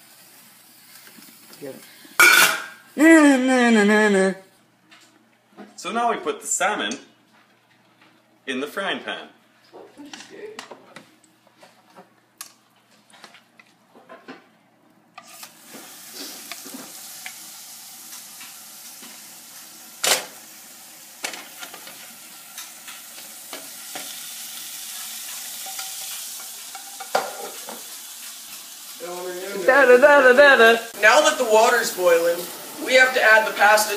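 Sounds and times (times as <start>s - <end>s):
fish sizzling in a frying pan: 0.0s - 3.0s, 15.3s - 33.9s.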